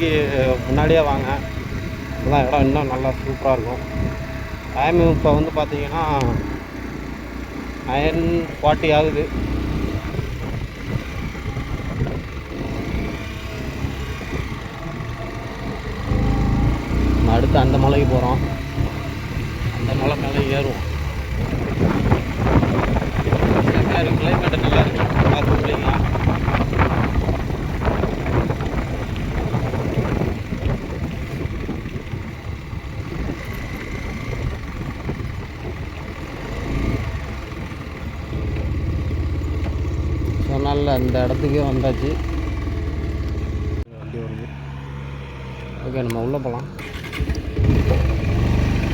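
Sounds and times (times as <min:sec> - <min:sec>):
motorcycle engine rumbling: 0:00.0 - 0:48.9
road noise: 0:00.0 - 0:48.9
wind on microphone: 0:09.2 - 0:40.6.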